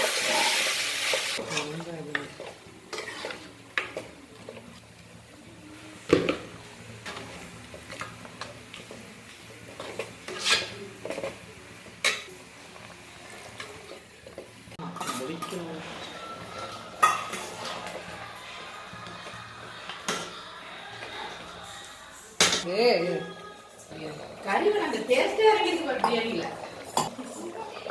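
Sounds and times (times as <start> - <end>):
faint sizzle: 0.0 - 27.9
spoon scraping a pot: 2.4 - 4.1, 9.7 - 11.4.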